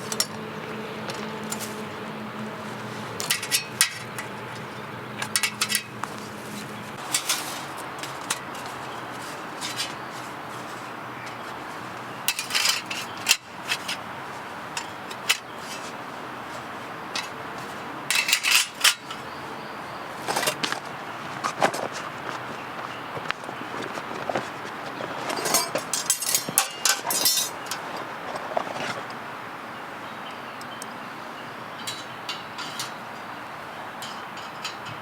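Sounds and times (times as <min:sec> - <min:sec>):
metal cookware clinking: 0:03.2 - 0:06.0, 0:25.4 - 0:27.8, 0:31.8 - 0:33.0, 0:34.0 - 0:35.0.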